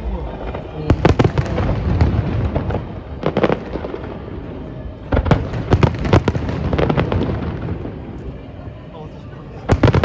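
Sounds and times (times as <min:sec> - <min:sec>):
steady low rumble: 0:00.0 - 0:05.6
fireworks bangs and crackles: 0:00.0 - 0:08.9, 0:09.5 - 0:10.0.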